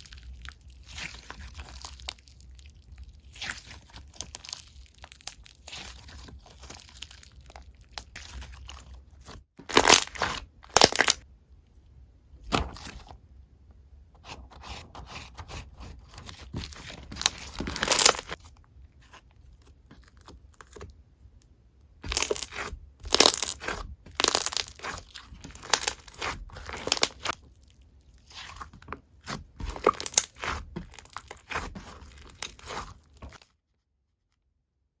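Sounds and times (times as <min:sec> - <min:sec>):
slime squished by hand: 0:00.0 - 0:11.2, 0:15.5 - 0:18.4, 0:22.0 - 0:33.4.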